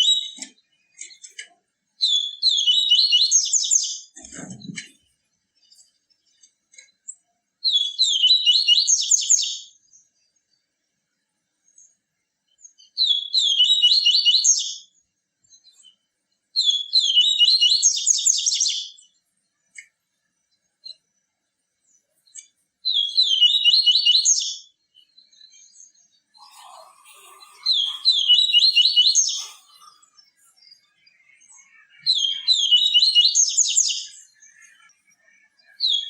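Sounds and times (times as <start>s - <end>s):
bird twittering song: 0.0s - 36.0s.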